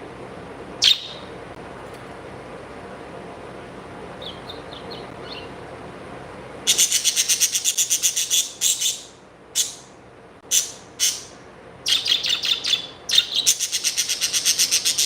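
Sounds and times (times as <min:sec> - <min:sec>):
pet birds chirping: 0:00.8 - 0:01.4, 0:04.2 - 0:05.6, 0:06.7 - 0:15.0.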